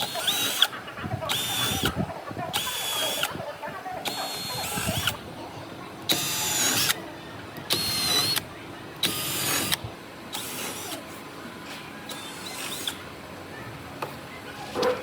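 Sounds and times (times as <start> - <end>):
power drill whining: 0.0 - 0.7, 1.3 - 1.9, 2.6 - 3.3, 6.1 - 7.0, 7.7 - 8.4, 9.0 - 11.0.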